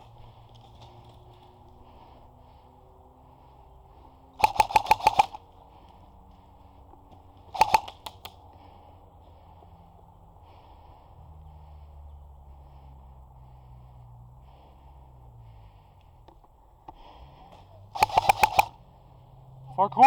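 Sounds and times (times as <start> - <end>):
airsoft gun shots: 4.4 - 5.5, 7.5 - 8.3, 18.0 - 18.8.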